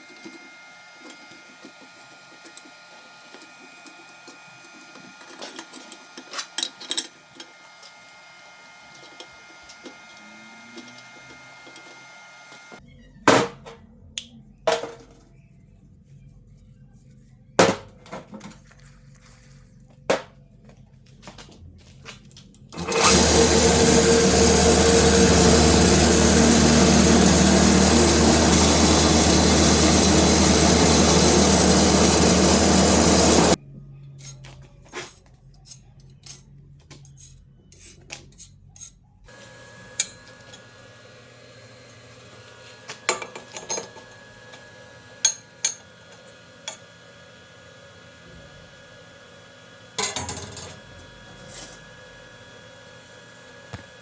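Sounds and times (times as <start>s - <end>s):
electric power tool running: 7.4s - 12.8s, 22.8s - 33.6s.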